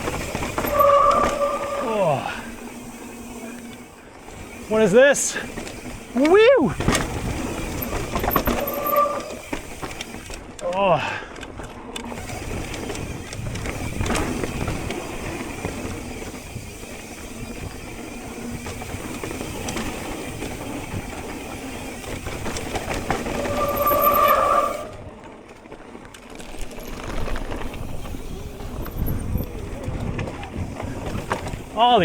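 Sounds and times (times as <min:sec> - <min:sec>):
disc brakes squealing: 0:00.0 - 0:10.3, 0:12.0 - 0:25.2
bike frame rattling: 0:00.0 - 0:32.0
bike tyres on dirt: 0:00.0 - 0:32.0
wind: 0:00.0 - 0:32.0.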